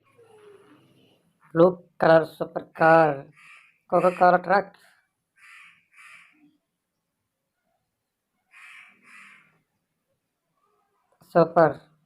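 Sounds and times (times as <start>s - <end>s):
crow cawing: 3.3s - 4.4s, 5.4s - 6.5s, 8.5s - 9.6s.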